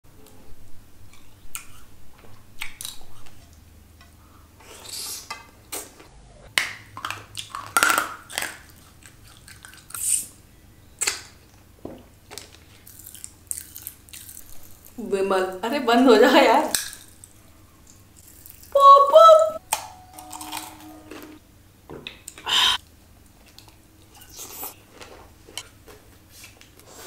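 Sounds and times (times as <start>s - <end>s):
crunchy chewing: 8.3s - 10.2s, 12.3s - 15.0s.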